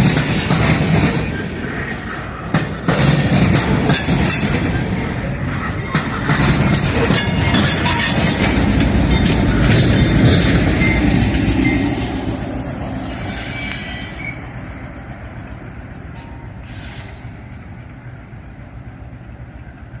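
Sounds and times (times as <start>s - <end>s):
freight train cars rolling: 0.0s - 20.0s
thin wheel squeals: 6.8s - 14.9s.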